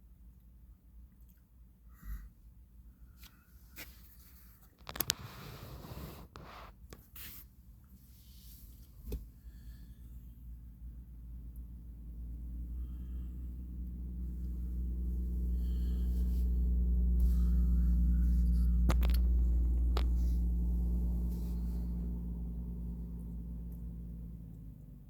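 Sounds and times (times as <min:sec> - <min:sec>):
boat engine droning: 0:12.6 - 0:24.0.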